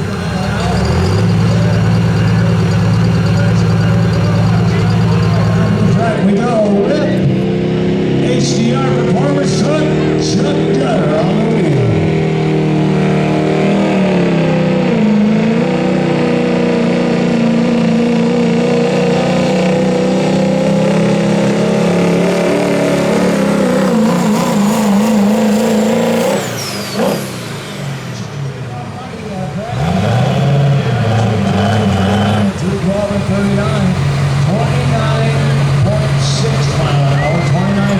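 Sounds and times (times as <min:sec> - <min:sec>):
diesel truck engine under load: 0:00.0 - 0:37.9.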